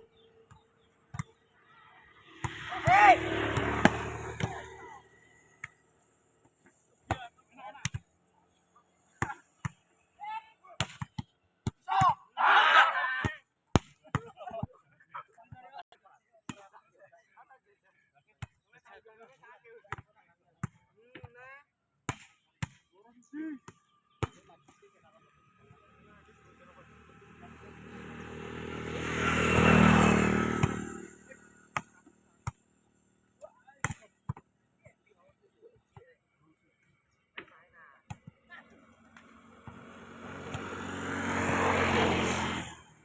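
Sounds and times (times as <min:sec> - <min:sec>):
vehicle engine passing by: 0:02.0 - 0:05.8, 0:25.4 - 0:32.3, 0:38.6 - 0:43.0
people shouting: 0:02.5 - 0:03.8, 0:11.8 - 0:13.4.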